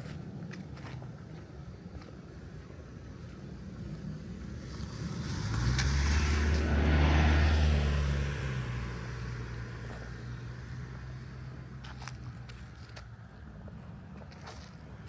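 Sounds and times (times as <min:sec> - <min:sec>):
motor vehicle passing by: 0:04.1 - 0:12.6.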